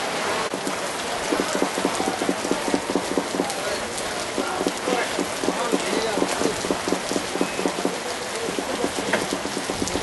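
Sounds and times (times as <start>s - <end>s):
steady rain falling: 0.0s - 10.0s
close raindrop hits: 0.5s - 10.0s.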